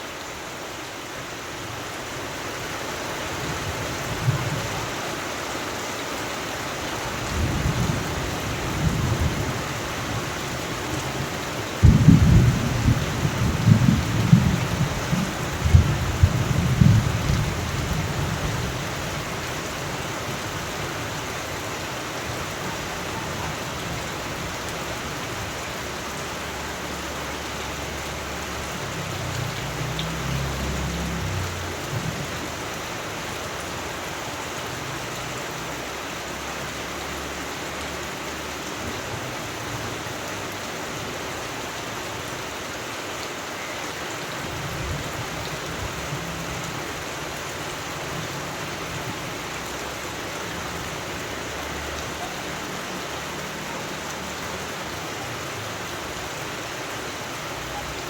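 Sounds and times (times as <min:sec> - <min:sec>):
heavy rain hissing: 0:00.0 - 0:58.0
rolling thunder: 0:11.0 - 0:18.7.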